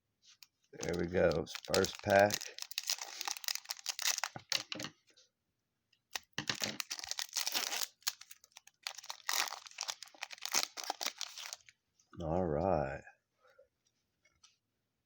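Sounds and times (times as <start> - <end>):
card pack wrapper tearing: 0.8 - 4.9, 6.1 - 11.7.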